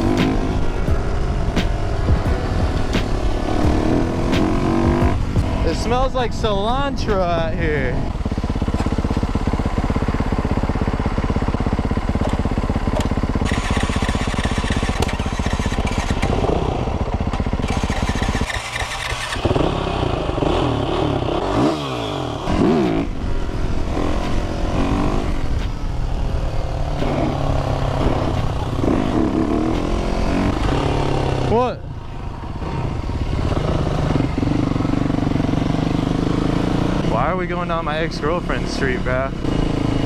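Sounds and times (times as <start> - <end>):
wind noise on microphone: 0.0 - 8.2
motorcycle engine: 0.0 - 40.0.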